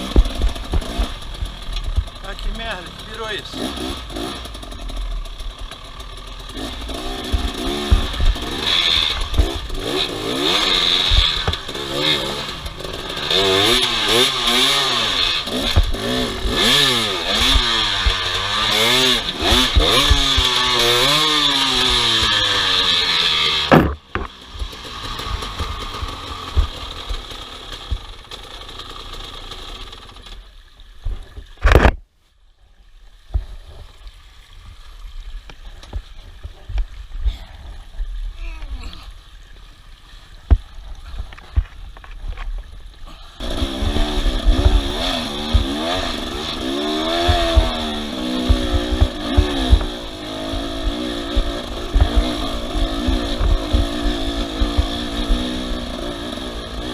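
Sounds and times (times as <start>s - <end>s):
motorcycle engines revving: 0.0s - 30.4s, 43.1s - 56.9s
knocks and clatter: 23.6s - 28.1s.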